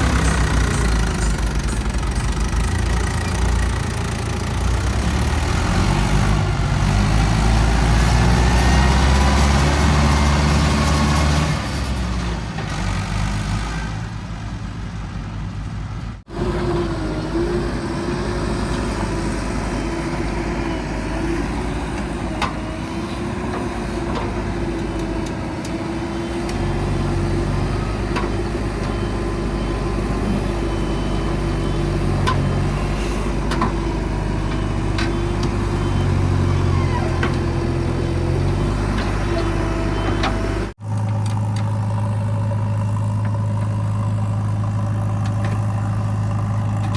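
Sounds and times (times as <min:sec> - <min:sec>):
heavy diesel engines revving: 0:00.0 - 0:46.9.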